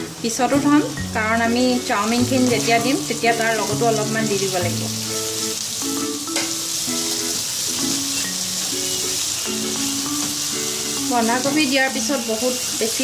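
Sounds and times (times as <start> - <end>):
light background music: 0.0 - 13.0
vegetables sizzling in hot oil: 0.0 - 13.0.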